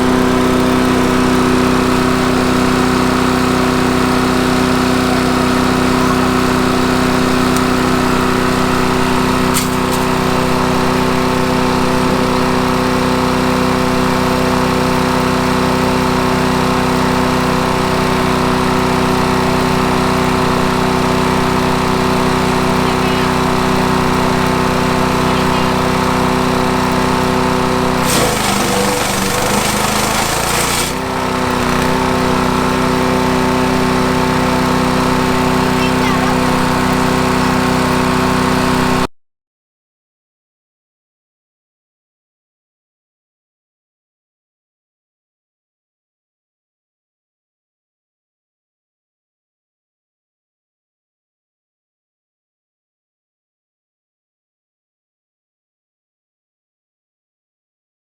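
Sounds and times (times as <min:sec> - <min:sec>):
wood chipper engine running: 0:00.0 - 0:39.0
branch grinding in chipper: 0:09.2 - 0:10.6, 0:27.8 - 0:33.0.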